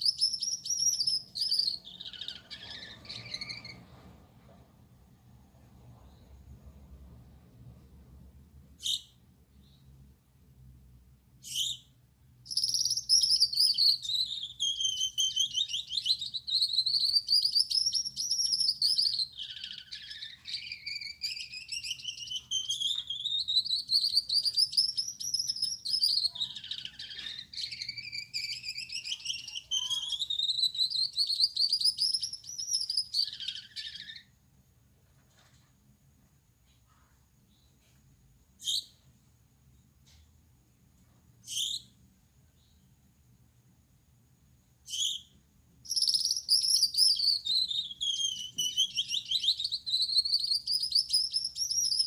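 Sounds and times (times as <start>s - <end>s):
finch buzzy song: 0.0s - 3.9s, 11.4s - 34.3s, 44.8s - 52.0s.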